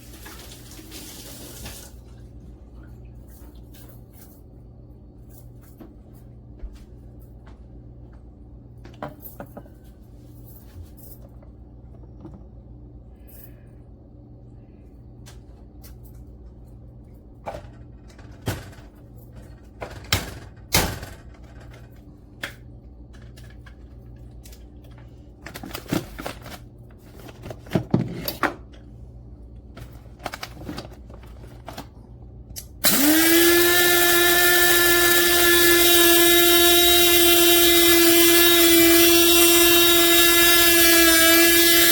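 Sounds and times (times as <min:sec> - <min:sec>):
small electric motor running: 0:32.8 - 0:41.9.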